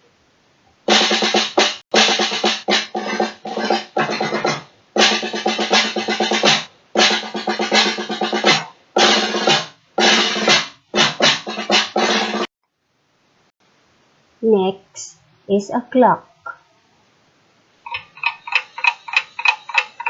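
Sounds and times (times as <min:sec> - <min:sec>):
drum rolls: 0:00.9 - 0:12.5, 0:17.9 - 0:20.0.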